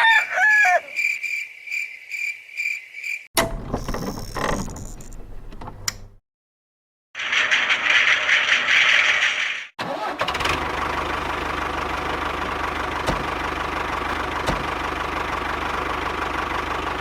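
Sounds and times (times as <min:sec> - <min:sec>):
rooster crowing: 0:00.0 - 0:01.2
mechanical clatter with low hum: 0:03.4 - 0:06.2, 0:12.1 - 0:16.2.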